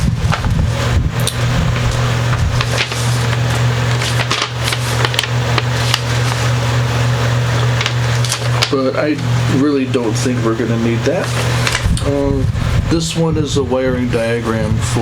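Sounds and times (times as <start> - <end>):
low electrical hum: 0.0 - 15.0
paper and packaging rustling: 1.2 - 9.2, 10.2 - 12.0.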